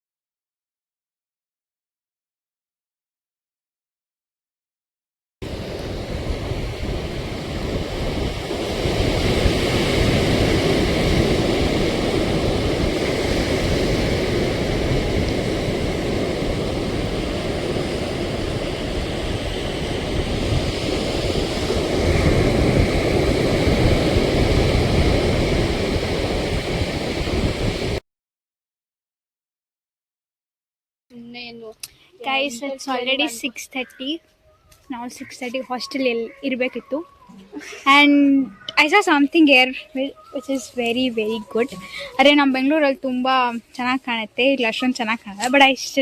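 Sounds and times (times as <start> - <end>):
sea waves breaking on beach: 5.4 - 28.0
wind buffeting microphone: 5.4 - 28.0.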